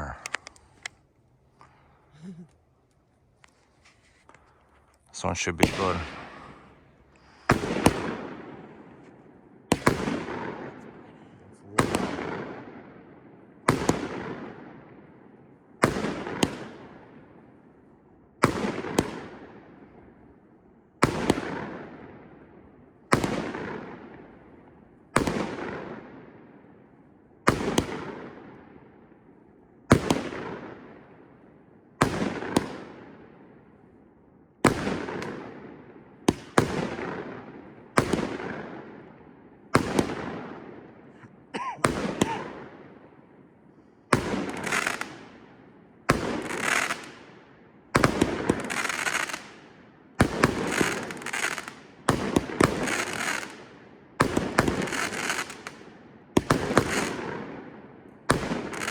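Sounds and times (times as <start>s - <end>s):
firework shots banging: 5.2s - 11.0s, 11.6s - 12.6s, 36.3s - 38.7s, 39.8s - 40.7s, 41.6s - 43.0s, 44.1s - 45.5s, 48.0s - 49.6s, 50.2s - 53.6s, 54.2s - 55.8s, 56.4s - 57.5s, 58.3s - 58.9s.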